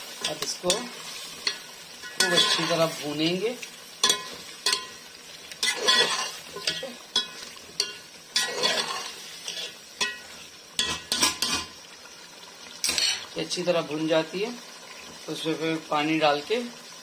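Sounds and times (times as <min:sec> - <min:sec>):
chicken sizzling in oil: 0:00.0 - 0:17.0
spatula scraping metal pot: 0:05.6 - 0:11.8, 0:12.8 - 0:13.3.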